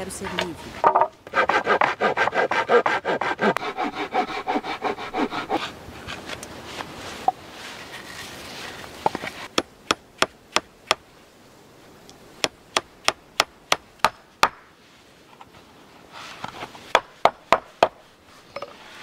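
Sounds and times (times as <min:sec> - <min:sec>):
hand tool striking wood: 0:16.9 - 0:18.0.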